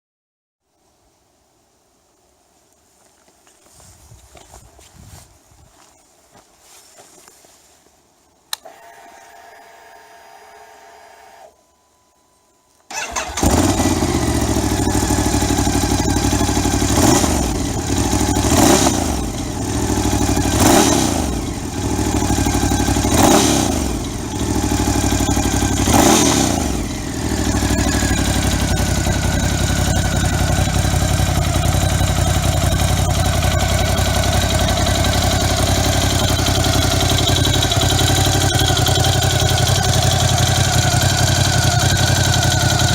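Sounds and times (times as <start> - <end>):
starter motor whir: 8.5 - 11.6, 12.9 - 42.9
motorcycle engine revving and idling: 12.9 - 42.9.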